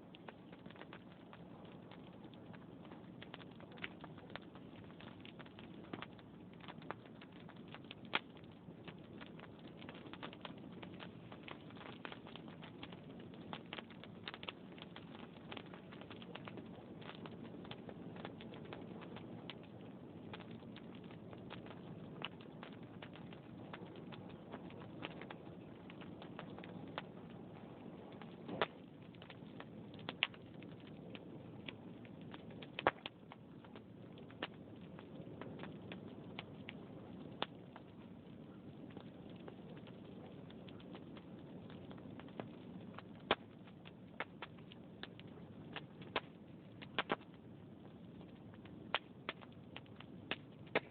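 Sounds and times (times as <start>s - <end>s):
low rush of flames: 0.0s - 50.9s
sharp fire pops: 0.0s - 50.9s
wood fire crackling: 0.0s - 50.9s.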